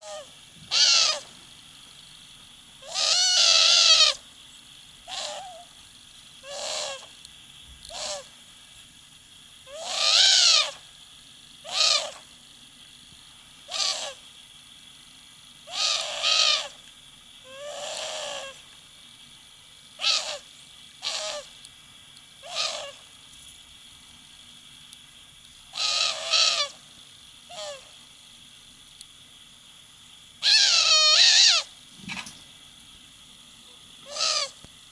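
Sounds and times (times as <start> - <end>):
owl wavering calls: 0.0 - 1.3, 2.8 - 4.2, 5.0 - 5.7, 6.4 - 7.1, 7.9 - 8.3, 9.7 - 10.8, 11.6 - 12.3, 13.6 - 14.2, 15.6 - 16.8, 17.4 - 18.6, 20.0 - 21.6, 22.4 - 23.1, 25.7 - 26.8, 27.4 - 28.0, 30.4 - 31.7, 34.0 - 34.6.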